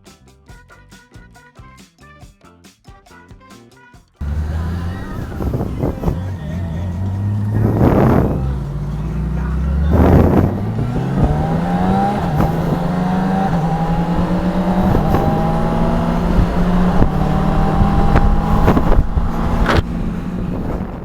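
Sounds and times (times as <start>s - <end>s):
motorcycle engine accelerating: 4.2s - 21.0s.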